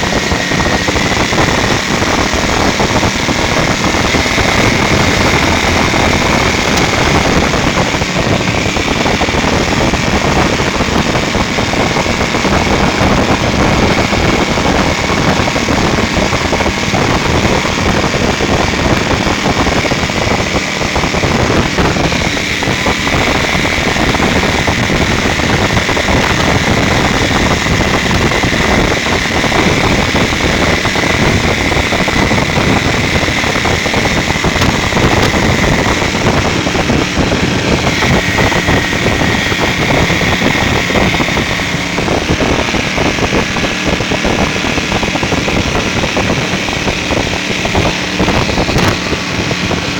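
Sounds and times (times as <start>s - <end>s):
high whine: 0.0s - 49.9s
speedboat engine running: 0.0s - 49.9s.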